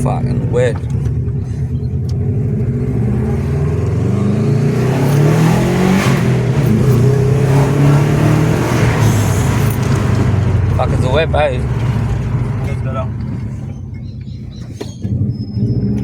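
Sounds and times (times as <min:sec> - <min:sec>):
car engine accelerating hard: 0:00.0 - 0:16.0
tyres hissing on wet road: 0:08.2 - 0:09.7.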